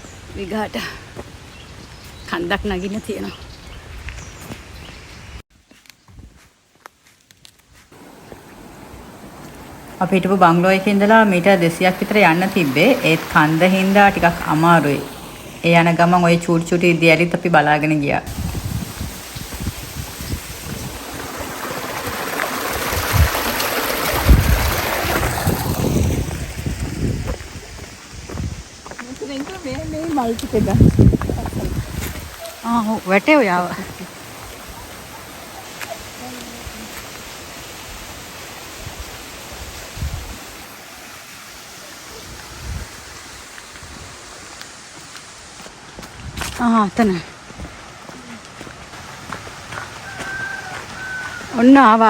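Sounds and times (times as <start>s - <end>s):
water rushing in a stream: 8.0s - 46.0s.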